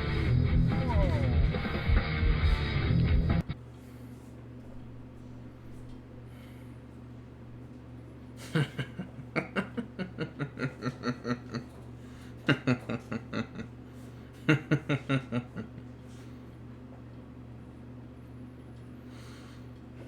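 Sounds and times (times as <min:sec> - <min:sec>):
steady low hum: 0:00.0 - 0:20.0
person laughing: 0:08.4 - 0:15.9.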